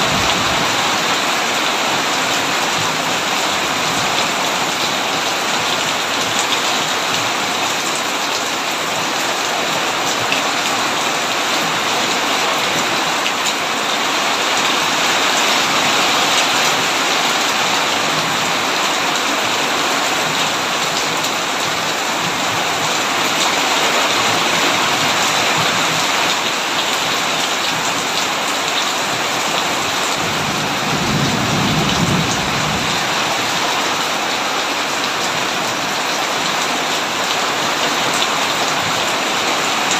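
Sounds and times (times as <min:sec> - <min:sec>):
low rumble of thunder: 0:00.0 - 0:01.0, 0:30.3 - 0:33.5
heavy rain on a tin roof: 0:00.0 - 0:39.9.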